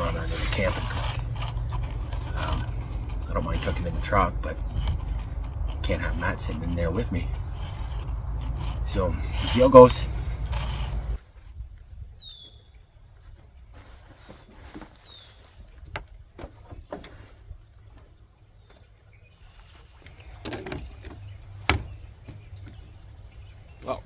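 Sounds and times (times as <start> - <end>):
bird calls sliding down: 0.0 - 11.2
low steady rumble: 0.0 - 11.2.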